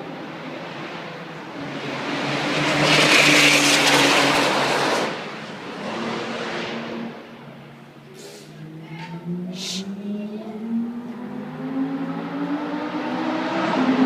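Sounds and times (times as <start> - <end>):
sports car engine passing by: 8.5 - 14.0.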